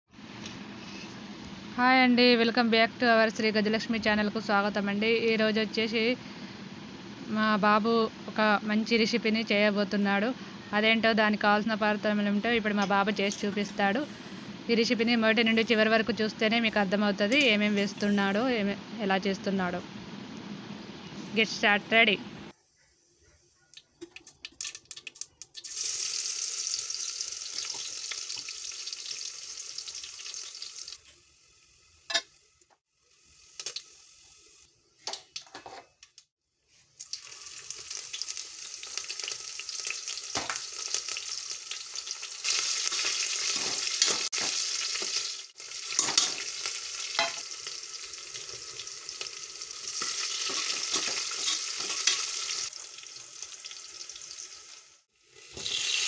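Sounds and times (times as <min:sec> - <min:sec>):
hot oil sizzling: 0:24.6 - 0:35.6, 0:36.7 - 0:56.0.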